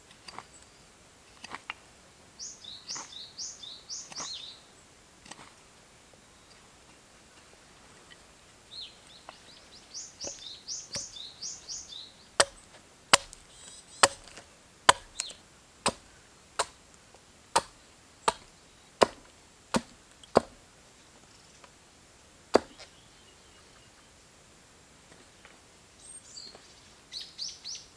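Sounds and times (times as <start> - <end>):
small bird chirping: 2.4 - 4.7, 8.0 - 12.7, 13.3 - 14.3
axe chopping wood: 10.2 - 11.2, 12.4 - 16.8, 17.5 - 20.6, 22.5 - 22.9.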